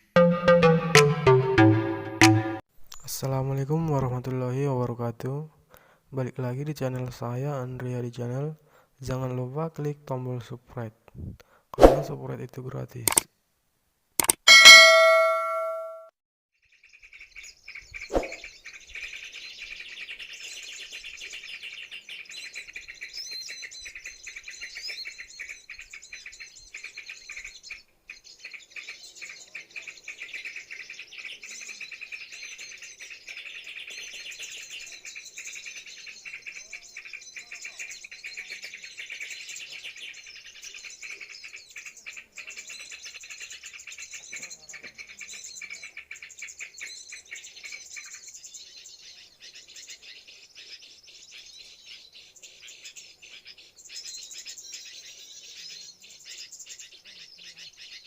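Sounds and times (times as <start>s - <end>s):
short thud: 11.8s - 12.2s
small birds chirping: 16.6s - 58.0s.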